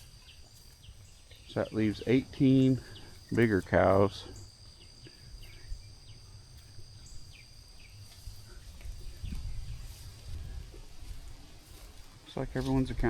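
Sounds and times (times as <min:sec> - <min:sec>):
bird chirps: 0:00.0 - 0:10.1
high insect drone: 0:00.0 - 0:13.0.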